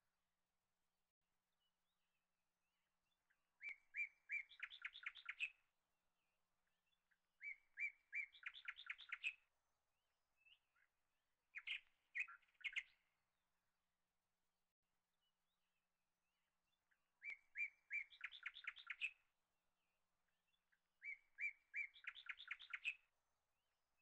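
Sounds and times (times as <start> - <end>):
small bird chirping: 3.6 - 5.6, 7.4 - 9.4, 11.6 - 13.0, 17.2 - 19.2, 21.0 - 23.1.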